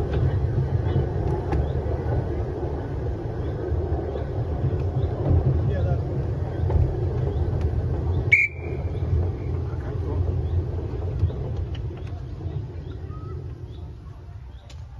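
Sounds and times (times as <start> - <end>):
train rumbling over track: 0.0 - 14.9
high whistle: 8.3 - 8.9.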